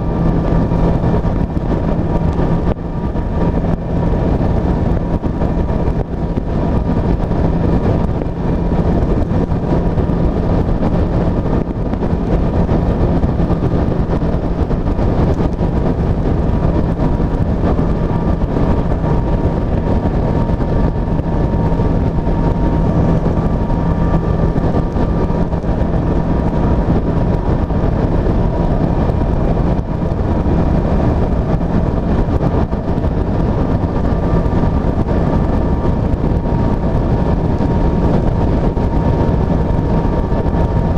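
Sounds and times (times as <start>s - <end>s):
motorcycle engine running: 0.0s - 40.9s
wind rushing: 0.0s - 40.9s.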